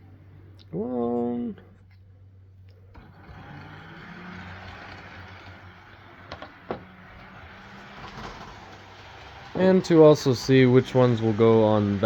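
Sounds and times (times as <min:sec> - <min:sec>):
model train motor hum: 0:02.9 - 0:12.0.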